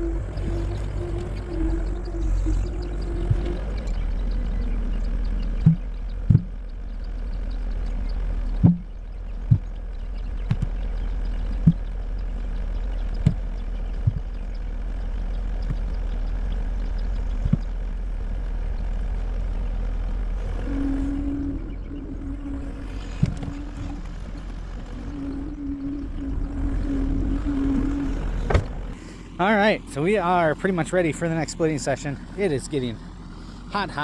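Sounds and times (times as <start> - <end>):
engine running: 0.0 - 34.0
sharp knocks: 8.6 - 8.9.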